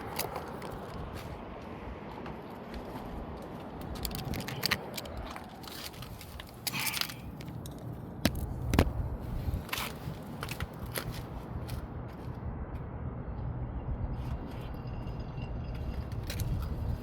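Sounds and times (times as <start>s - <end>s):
packaging clicks and crackles: 3.8s - 8.9s.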